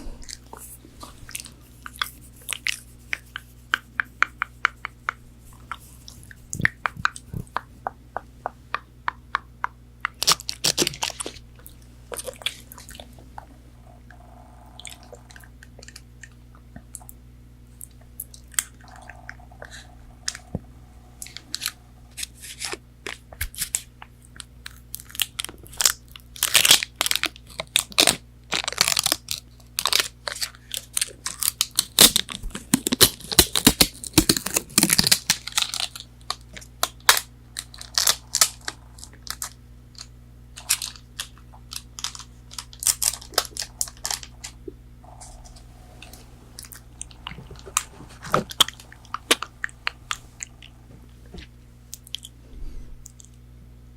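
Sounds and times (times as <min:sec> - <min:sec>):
crunching fried food: 0:10.0 - 0:16.4, 0:21.2 - 0:50.9.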